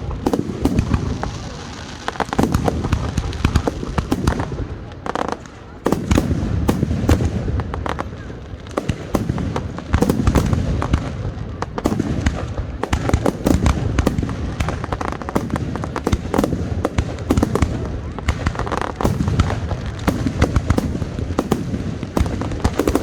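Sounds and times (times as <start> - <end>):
fireworks cracking and popping: 0.0 - 23.0.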